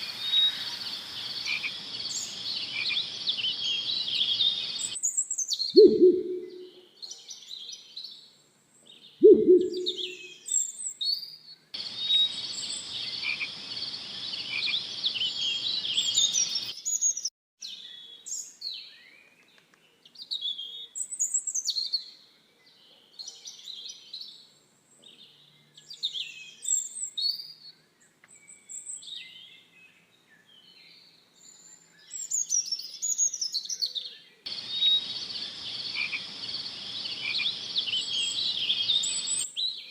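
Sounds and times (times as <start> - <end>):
steady hiss with high buzz: 0.0 - 2.8
songbirds chirping and trilling: 0.0 - 39.9
short low bird call: 5.8 - 6.8, 9.2 - 10.4.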